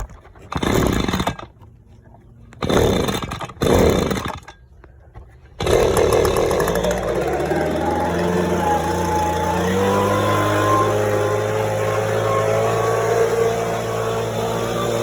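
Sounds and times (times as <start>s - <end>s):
leaf blower engine revving: 5.6s - 15.0s.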